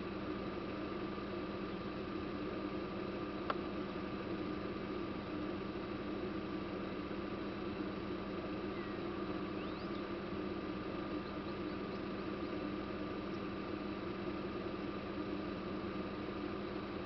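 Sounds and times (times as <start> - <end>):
steady hum and hiss: 0.0 - 17.0.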